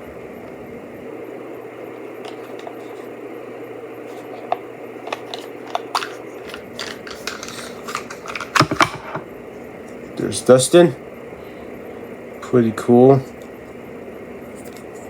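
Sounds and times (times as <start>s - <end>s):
plastic clatter: 2.2s - 3.0s, 4.1s - 9.2s
plastic packaging being opened: 4.1s - 9.2s.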